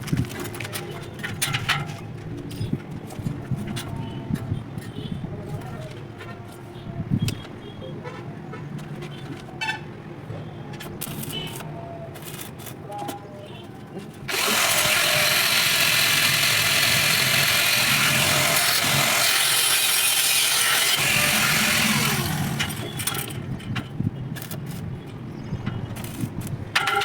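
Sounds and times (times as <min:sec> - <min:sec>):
angle grinder cutting steel: 0:14.3 - 0:23.4.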